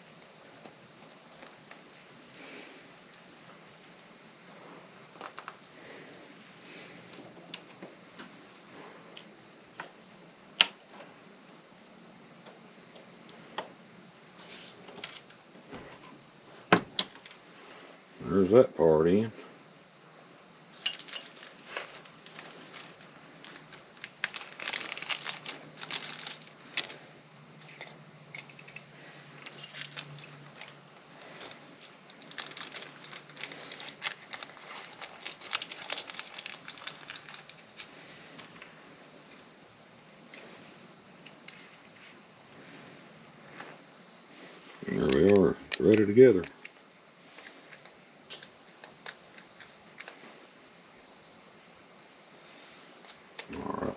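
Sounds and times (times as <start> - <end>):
faint high whine: 0.0 - 47.7
small parts clicking and tapping: 20.7 - 27.0, 27.6 - 30.8, 45.1 - 46.8, 47.4 - 50.3.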